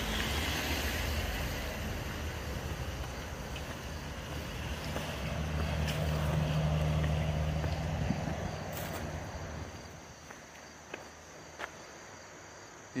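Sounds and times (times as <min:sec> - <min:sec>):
car engine humming: 0:00.0 - 0:10.2.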